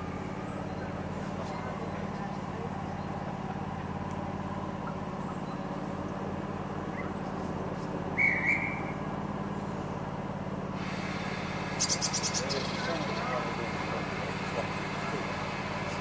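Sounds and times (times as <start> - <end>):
train humming: 0.0 - 16.0
short high whistle: 8.2 - 9.0.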